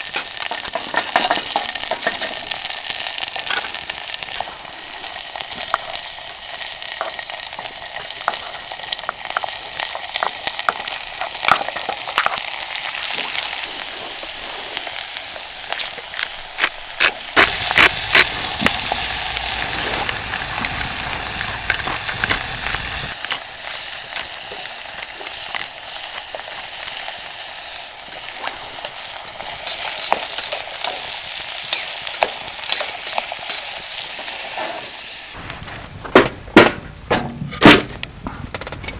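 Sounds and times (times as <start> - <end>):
food sizzling in a pan: 0.0 - 35.4
utensil clicking and scraping: 15.7 - 20.2.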